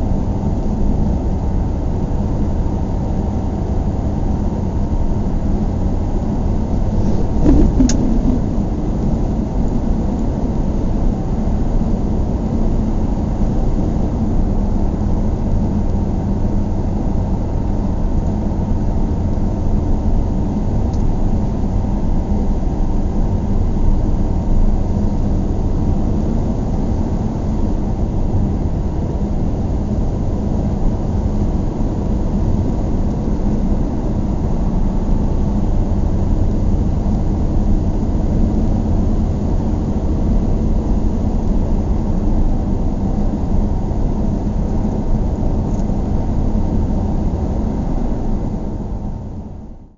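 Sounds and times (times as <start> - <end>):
vehicle rumble: 6.7 - 10.2
brief knock: 7.0 - 8.6.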